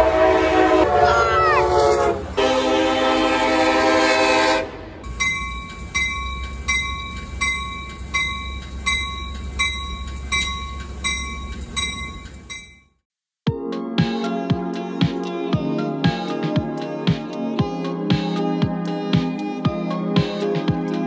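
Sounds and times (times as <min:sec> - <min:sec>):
train horn chord: 0:00.0 - 0:05.0
train bell ringing: 0:05.1 - 0:13.0.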